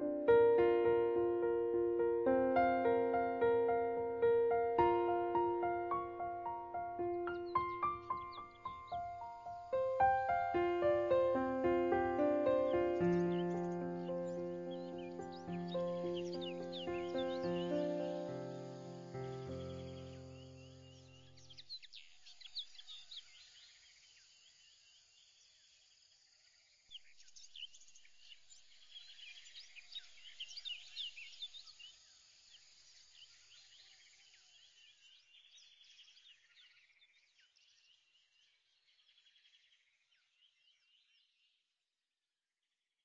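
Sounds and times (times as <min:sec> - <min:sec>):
faint birdsong chirps and trills: 0:00.0 - 0:41.8.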